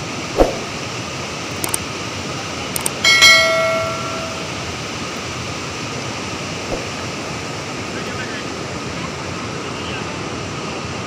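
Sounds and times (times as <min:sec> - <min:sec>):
metallic ring: 0:02.9 - 0:04.9.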